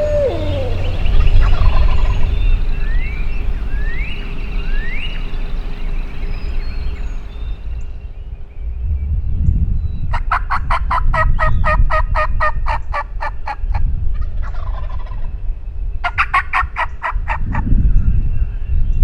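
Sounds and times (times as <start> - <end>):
wild turkey calling: 0.0 - 4.1
low rumble: 0.0 - 7.0, 8.4 - 10.1.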